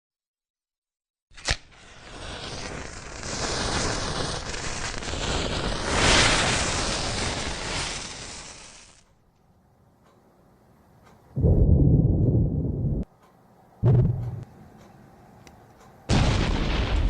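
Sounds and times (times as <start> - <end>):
thunder crack and rumble: 11.4 - 13.1, 13.8 - 14.4, 16.1 - 17.0.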